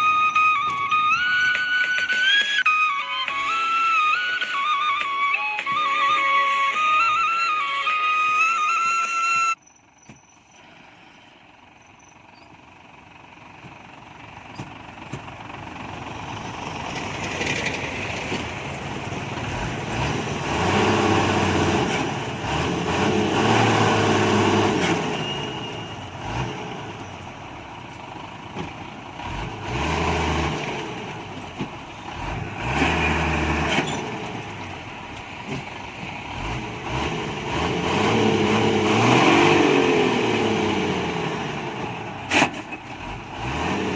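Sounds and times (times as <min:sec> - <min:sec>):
truck engine revving: 0:12.7 - 0:43.9.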